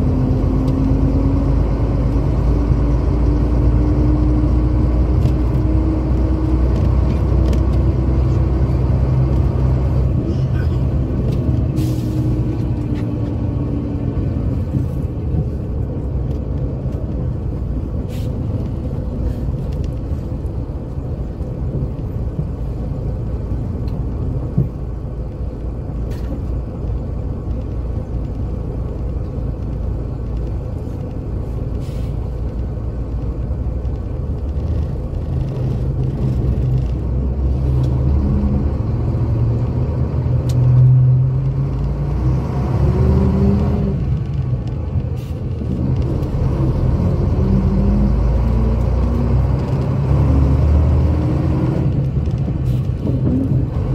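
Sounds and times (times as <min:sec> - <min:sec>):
diesel coach engine droning: 0:00.0 - 0:53.9
rattles and clicks: 0:05.2 - 0:38.2, 0:51.8 - 0:53.9.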